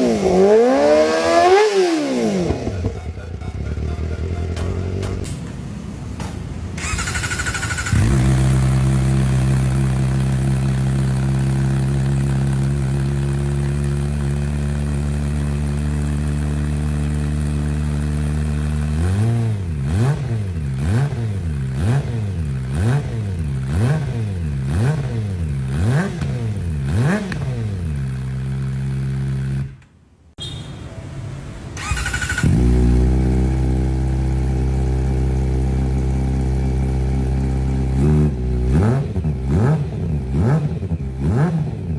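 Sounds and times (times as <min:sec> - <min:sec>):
motorcycle engine idling and revving: 0:00.0 - 0:29.9, 0:31.8 - 0:41.9
another motorcycle engine idling: 0:02.2 - 0:29.6, 0:31.8 - 0:41.9.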